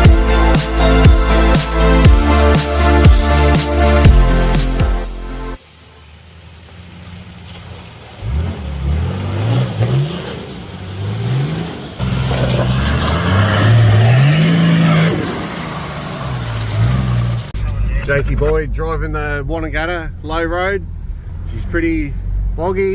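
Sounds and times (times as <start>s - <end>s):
vehicle engine revving: 5.8s - 22.9s.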